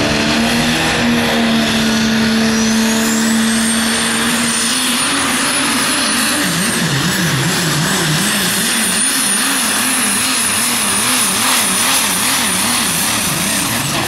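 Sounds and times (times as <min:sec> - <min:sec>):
diesel truck engine at full throttle: 0:00.0 - 0:14.0
high turbo whistle: 0:01.4 - 0:06.9.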